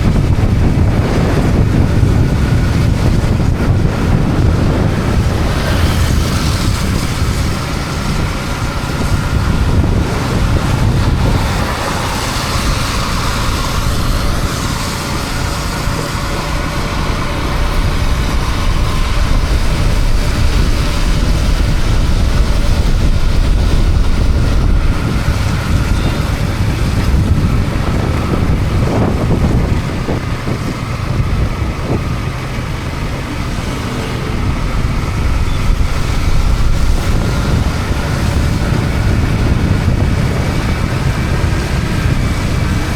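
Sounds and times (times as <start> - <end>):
motorcycle engine running: 0.0 - 42.9
wind buffeting microphone: 0.0 - 42.9
tyre hiss on wet road: 4.8 - 27.2.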